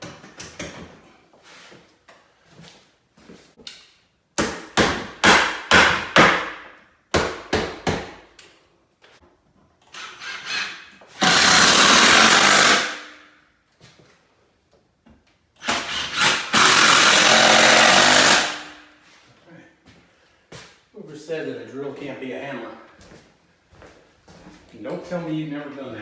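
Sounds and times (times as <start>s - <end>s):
hammering on wood: 4.4s - 8.3s
power tool running: 10.0s - 13.1s, 15.6s - 18.8s.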